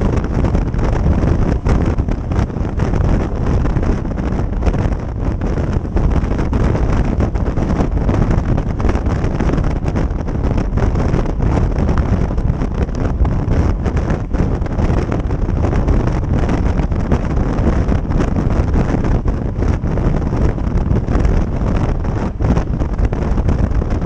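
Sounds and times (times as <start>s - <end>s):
motorcycle riding noise: 0.0s - 24.0s
wind buffeting microphone: 0.0s - 24.0s.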